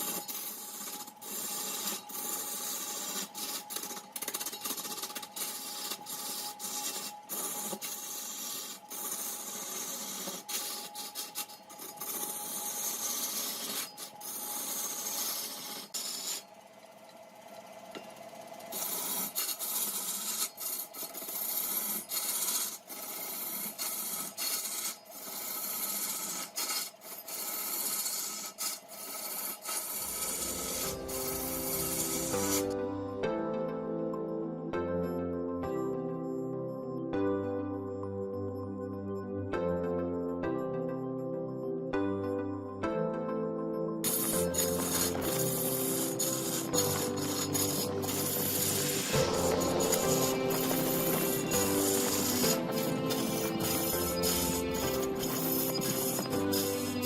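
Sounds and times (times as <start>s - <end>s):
music: 0.0s - 15.6s, 30.0s - 57.0s
lathe tool scraping spinning wood: 0.0s - 33.2s, 44.0s - 57.0s.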